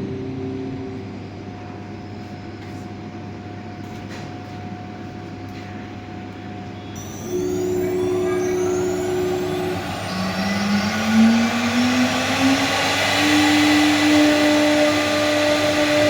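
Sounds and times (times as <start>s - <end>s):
cnc router machine hum: 0.0s - 2.0s, 6.7s - 16.0s
spindle high whine: 0.0s - 3.6s, 6.5s - 16.0s.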